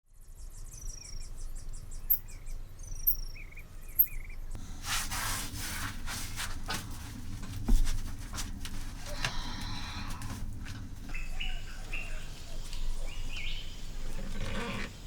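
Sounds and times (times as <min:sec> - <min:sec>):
birds whistling and chirping: 0:00.4 - 0:04.4, 0:11.1 - 0:14.6
noisy rustle: 0:04.6 - 0:15.0
insects chirping: 0:11.1 - 0:15.0.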